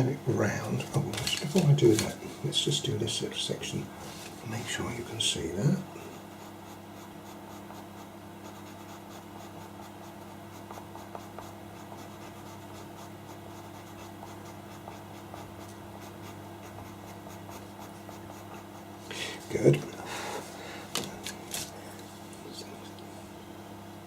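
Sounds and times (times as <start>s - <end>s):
steady low hum: 0.0s - 24.0s
pencil scratching on paper: 6.1s - 19.7s.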